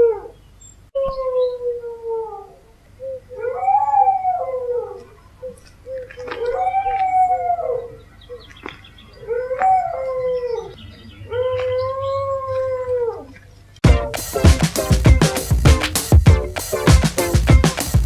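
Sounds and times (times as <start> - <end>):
dog's wavering howl: 0.0 - 0.3, 1.0 - 2.7, 3.4 - 5.2, 6.4 - 8.0, 9.2 - 13.4
dog howling: 3.4 - 5.2, 6.3 - 8.0, 9.2 - 13.4.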